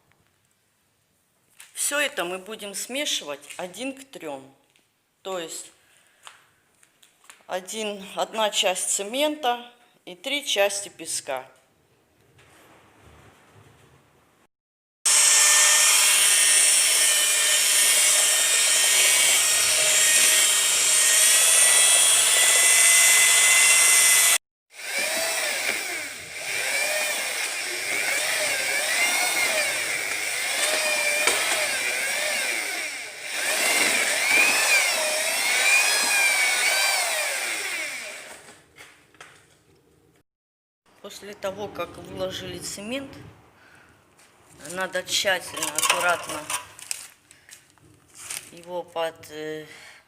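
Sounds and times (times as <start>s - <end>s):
electric drill mixing mortar: 15.1s - 38.7s, 45.4s - 47.0s.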